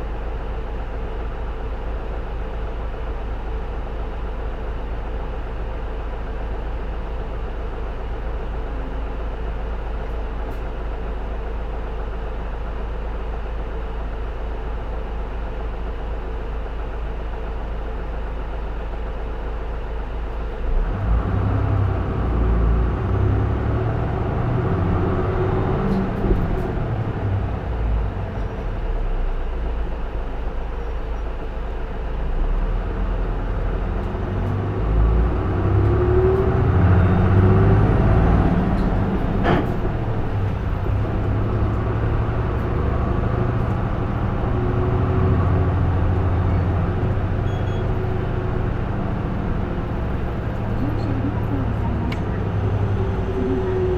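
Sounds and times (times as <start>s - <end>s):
bus diesel engine: 0.0s - 53.9s
engine whine: 20.0s - 53.9s.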